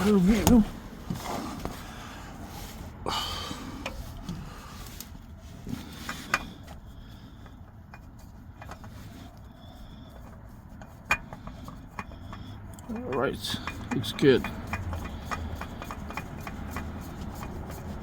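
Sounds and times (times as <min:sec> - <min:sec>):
low steady rumble: 0:00.0 - 0:18.0
light clicks and knocks: 0:10.2 - 0:18.0.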